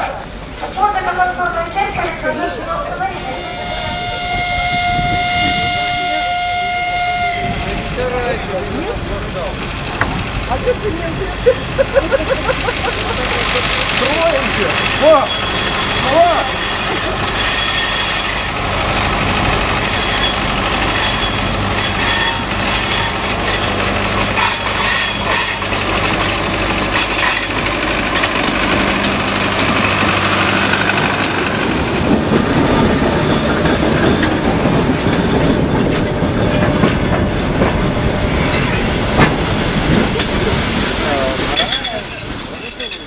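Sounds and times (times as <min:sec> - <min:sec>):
diesel locomotive engine humming: 0:00.0 - 0:43.0
wheels squealing on rails: 0:00.3 - 0:43.0
carriage wheels rumbling: 0:09.9 - 0:43.0.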